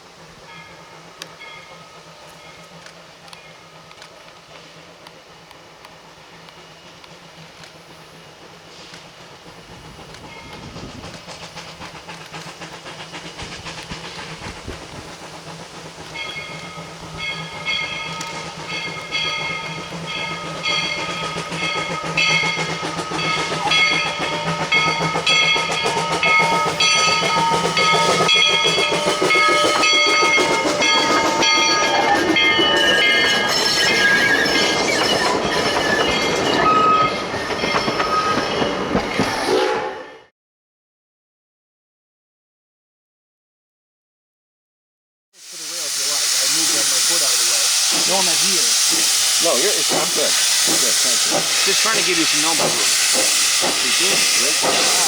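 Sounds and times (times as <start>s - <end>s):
steam train passing: 0.0s - 40.3s, 45.4s - 55.0s
wheels squealing on rails: 0.1s - 40.3s, 45.4s - 55.0s
rail clatter: 46.2s - 55.0s.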